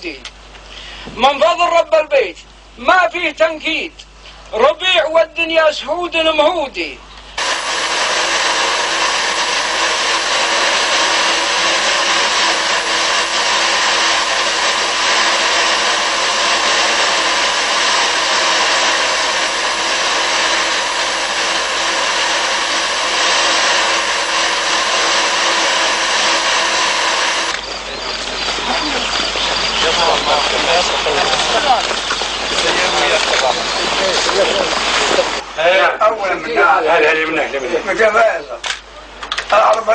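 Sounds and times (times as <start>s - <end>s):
loud rushing noise: 7.4s - 27.6s.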